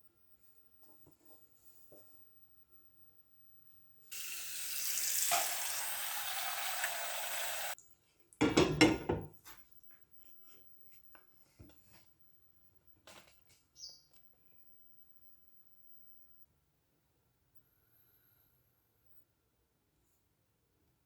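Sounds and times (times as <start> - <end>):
water pouring: 4.1 - 7.8
kitchenware clattering: 8.4 - 9.3.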